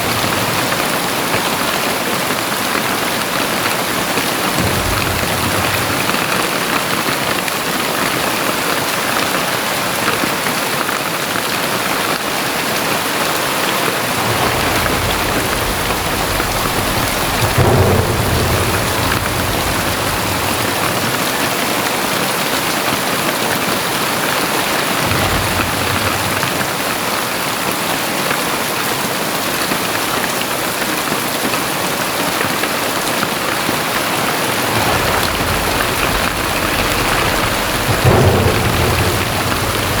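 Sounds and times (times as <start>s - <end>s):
heavy rain pouring: 0.0s - 40.0s
deep low rumble: 4.6s - 7.0s, 14.1s - 21.6s, 34.0s - 40.0s.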